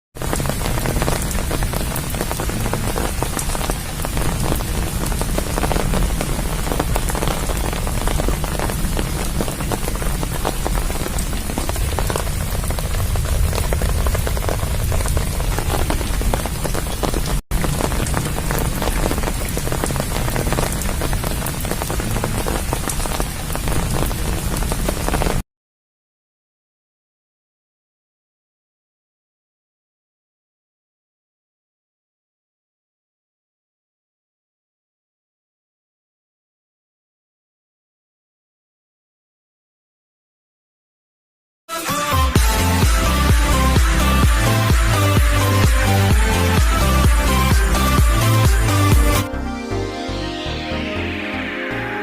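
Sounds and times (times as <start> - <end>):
steady rain falling: 0.2 - 25.4, 41.7 - 49.3.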